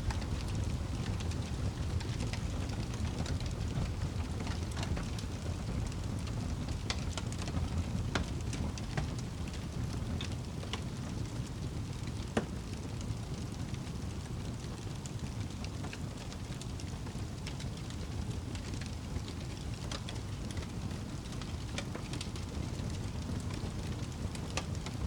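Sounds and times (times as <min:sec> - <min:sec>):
fire crackling and popping: 0:00.0 - 0:25.0
low rumble of flames: 0:00.0 - 0:25.0.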